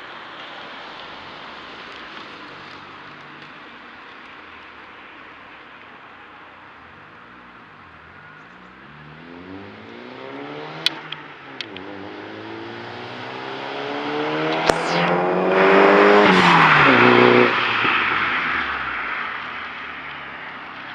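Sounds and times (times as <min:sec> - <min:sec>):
car engine accelerating: 0:06.8 - 0:20.9.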